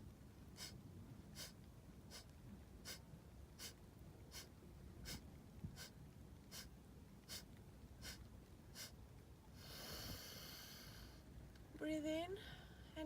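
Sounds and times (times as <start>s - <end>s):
steady breath: 0.6s - 0.8s, 1.4s - 3.0s, 3.6s - 5.2s, 5.8s - 6.7s, 7.3s - 8.2s, 8.8s - 9.0s, 9.6s - 11.3s, 12.4s - 13.0s
quick forceful nasal exhalations: 1.4s - 3.0s, 3.6s - 5.2s, 7.3s - 8.2s.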